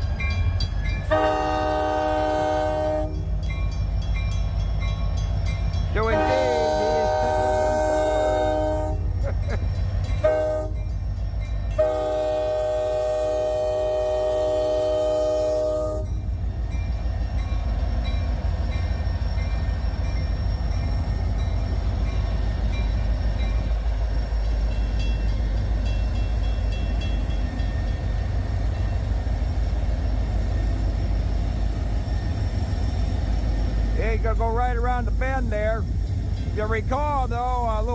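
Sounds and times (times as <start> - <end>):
locomotive engine and train rumble: 0.0 - 37.9
locomotive air horn blasts: 1.1 - 3.2, 6.1 - 9.1, 10.2 - 10.8, 11.7 - 16.1.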